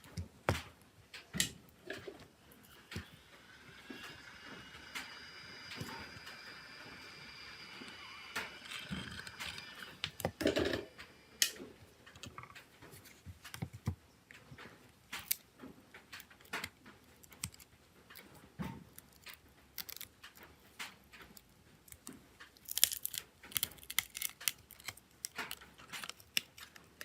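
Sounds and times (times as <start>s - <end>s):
faint high whine: 1.3s - 12.6s
clicks of plastic and metal parts: 11.4s - 27.0s.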